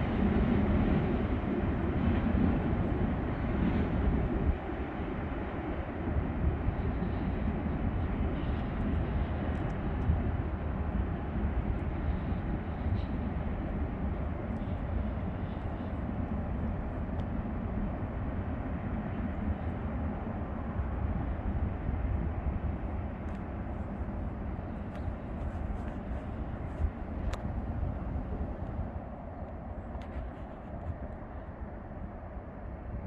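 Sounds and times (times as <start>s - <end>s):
distant freight train rumble: 0.0s - 33.0s.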